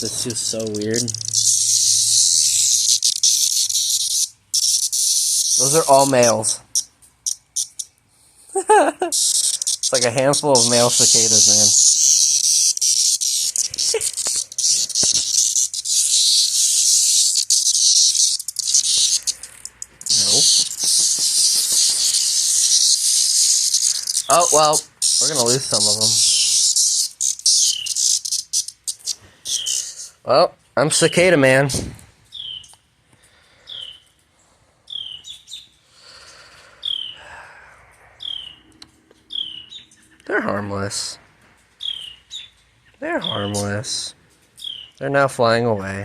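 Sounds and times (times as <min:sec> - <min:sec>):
bird chirping: 0:00.0 - 0:08.0, 0:09.1 - 0:30.2, 0:32.2 - 0:32.8, 0:33.5 - 0:37.3, 0:37.9 - 0:41.1, 0:41.7 - 0:45.0
cicadas buzzing: 0:00.0 - 0:08.0, 0:08.6 - 0:30.2, 0:34.9 - 0:39.9, 0:43.2 - 0:45.0.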